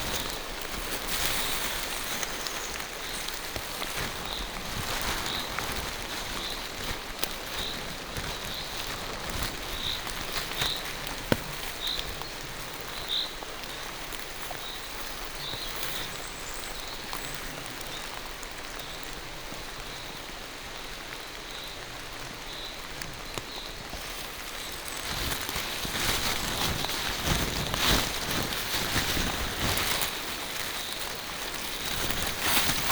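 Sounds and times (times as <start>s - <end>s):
rain falling through forest: 0.0s - 32.9s.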